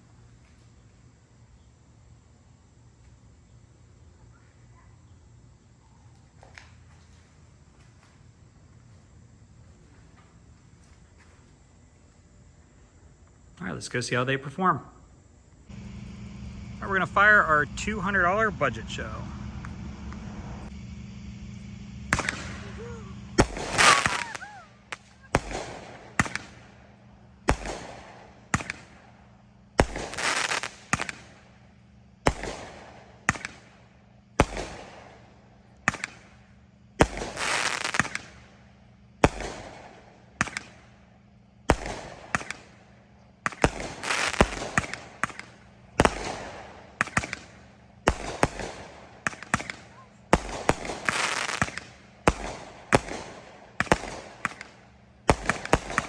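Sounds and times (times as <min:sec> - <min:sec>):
fireworks crackling: 0:15.5 - 0:56.0
fireworks bangs: 0:15.7 - 0:31.6, 0:32.2 - 0:38.6, 0:39.2 - 0:40.9, 0:41.7 - 0:56.0.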